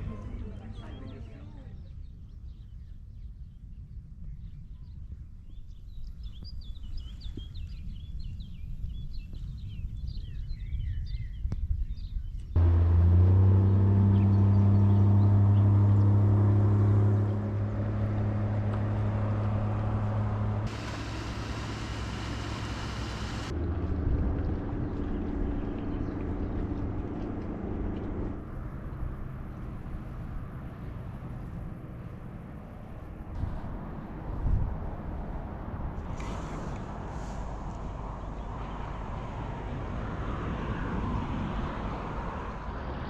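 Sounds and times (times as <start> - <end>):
motor engine humming: 12.6 - 34.2.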